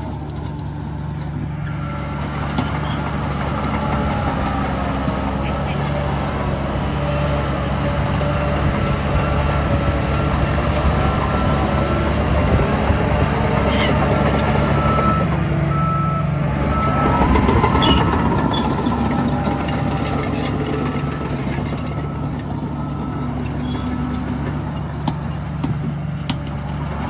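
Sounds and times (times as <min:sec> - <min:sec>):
heavy diesel machinery running: 0:00.0 - 0:27.0
reversing alarm beeps: 0:14.6 - 0:19.1.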